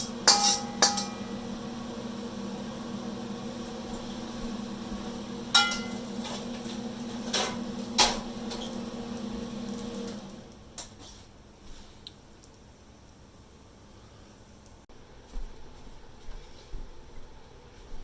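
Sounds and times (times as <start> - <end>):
metal knocking on cookware: 0.0 - 1.3, 5.5 - 6.0
kitchen appliance humming: 0.0 - 10.9.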